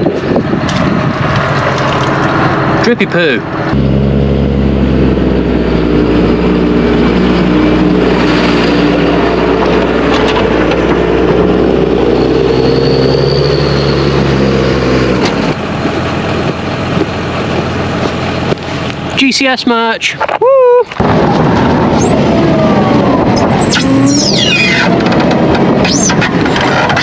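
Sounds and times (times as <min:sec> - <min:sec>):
tractor engine running: 0:00.0 - 0:19.4, 0:21.0 - 0:27.0
rough rattling noise: 0:23.4 - 0:27.0.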